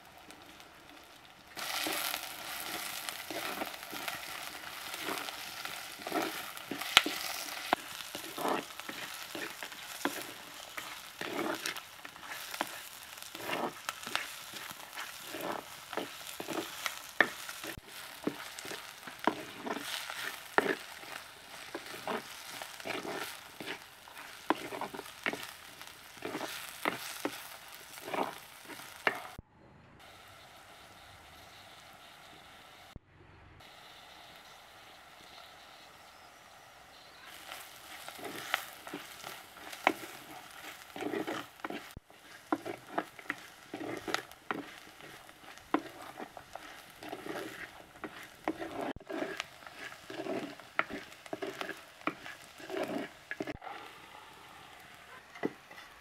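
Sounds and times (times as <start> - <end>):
onions sizzling in clay pot: 0.0 - 29.4, 30.0 - 33.0, 33.6 - 56.0
spoon scraping pot: 1.6 - 29.4, 37.3 - 53.6.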